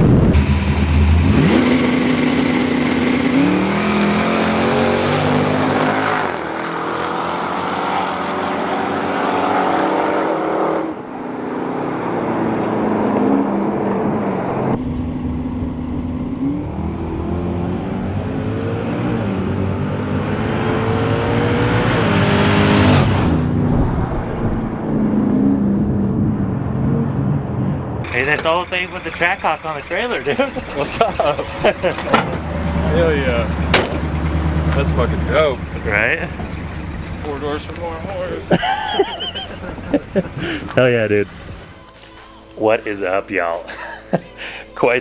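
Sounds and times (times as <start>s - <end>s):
race cars accelerating hard: 0.3s - 14.8s, 16.4s - 23.6s, 28.1s - 41.8s.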